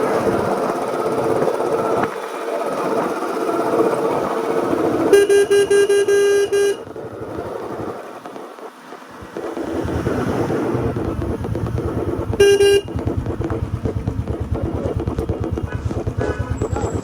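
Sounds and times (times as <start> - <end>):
motorcycle engine running: 0.0 - 8.2, 8.8 - 17.0
horn short toots: 5.1 - 6.8, 12.2 - 13.7.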